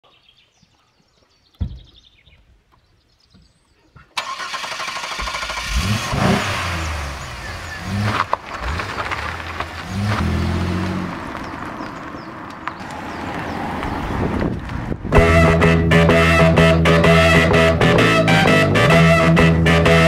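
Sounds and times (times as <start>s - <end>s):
car engine idling and revving: 4.2s - 17.7s.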